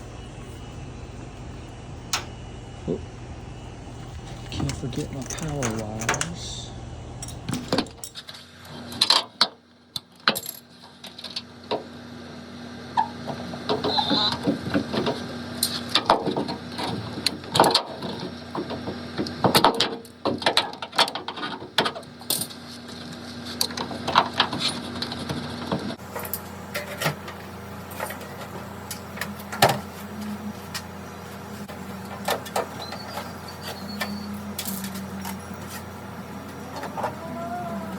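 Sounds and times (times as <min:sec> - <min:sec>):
faint steady hum: 0:00.0 - 0:17.6.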